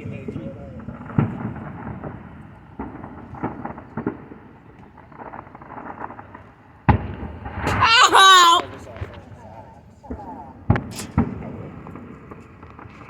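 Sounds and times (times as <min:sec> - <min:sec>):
fireworks bangs: 0:07.6 - 0:08.7.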